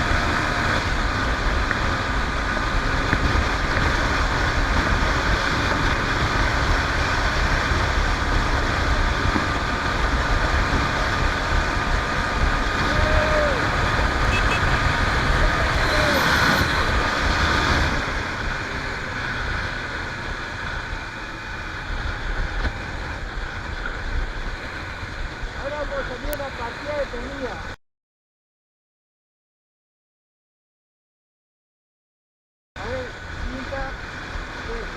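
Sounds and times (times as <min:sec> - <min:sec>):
motorcycle engine at speed: 0:00.0 - 0:27.7, 0:32.8 - 0:34.9
road noise: 0:00.0 - 0:27.8, 0:32.8 - 0:34.9.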